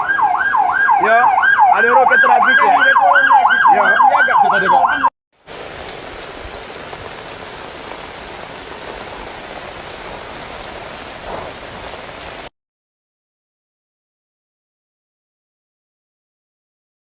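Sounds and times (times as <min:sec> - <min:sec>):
emergency siren wailing: 0:00.0 - 0:05.2
heavy rain falling: 0:00.0 - 0:12.5.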